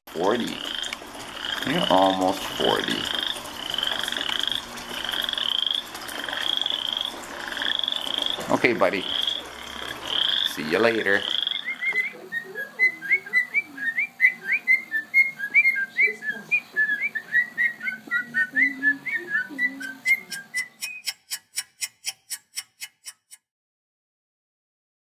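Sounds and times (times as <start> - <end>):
bird whistling chirps: 11.3 - 21.3
evenly spaced clicks: 19.8 - 23.4.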